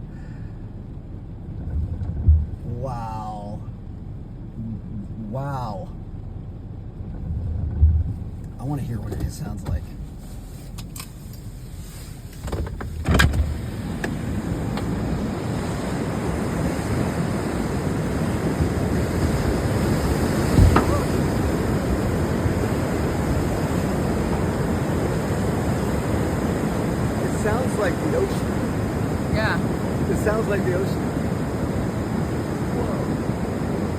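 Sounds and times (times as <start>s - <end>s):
floodwater rushing down creek: 13.6s - 33.9s
knock: 20.6s - 20.9s.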